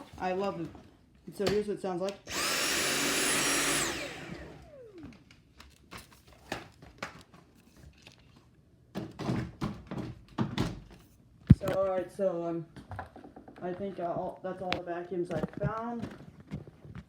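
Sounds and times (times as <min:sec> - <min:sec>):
vacuum cleaner running: 0:00.0 - 0:00.8, 0:02.3 - 0:05.2
vacuum motor spinning down: 0:02.3 - 0:05.2.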